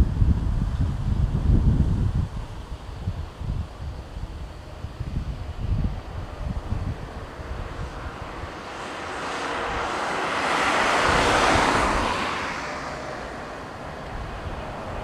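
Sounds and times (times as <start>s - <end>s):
wind buffeting microphone: 0.0s - 15.0s
jet airliner passing: 3.8s - 15.0s.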